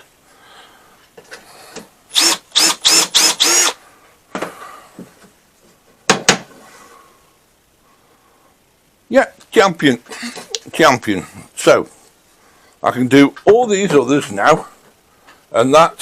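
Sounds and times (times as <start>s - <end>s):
power drill whining: 2.1s - 3.8s.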